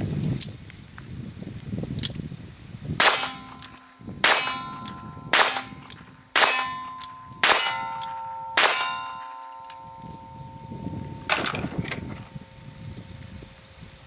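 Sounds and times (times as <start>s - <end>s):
metallic ringing: 3.0s - 12.9s.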